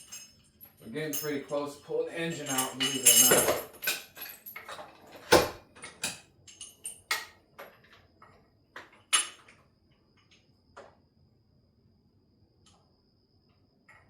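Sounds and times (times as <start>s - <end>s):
metal hand tools clanking: 0.0s - 7.3s.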